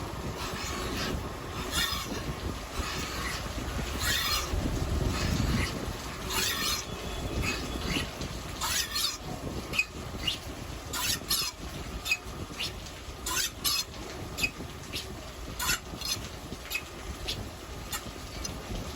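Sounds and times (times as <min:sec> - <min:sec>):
surface grinder rumbling: 0:00.0 - 0:09.8
grinding wheel hissing bursts: 0:00.0 - 0:18.1.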